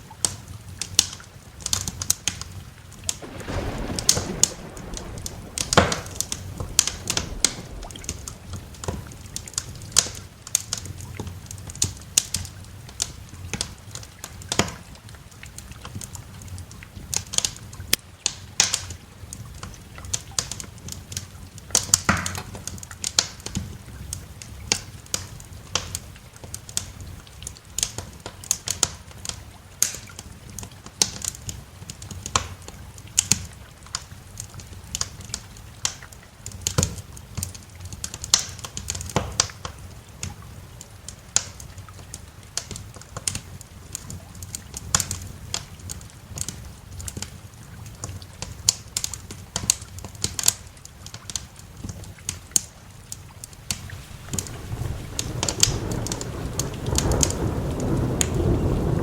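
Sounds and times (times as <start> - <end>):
wood fire crackling: 1.0 - 14.6, 33.1 - 59.0
fire pops and snaps: 3.0 - 12.4, 48.4 - 59.0
low rumble: 3.2 - 10.2, 53.8 - 59.0.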